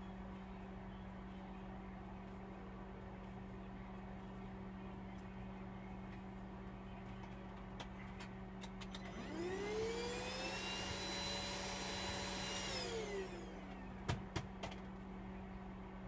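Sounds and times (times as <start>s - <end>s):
small electric motor whining: 9.0s - 13.8s.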